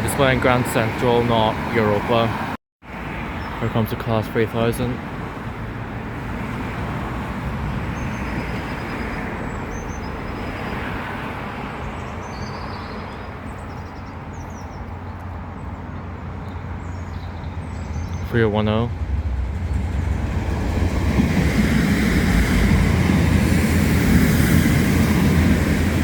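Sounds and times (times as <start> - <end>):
train engine and wheels rumble: 13.3 - 26.0.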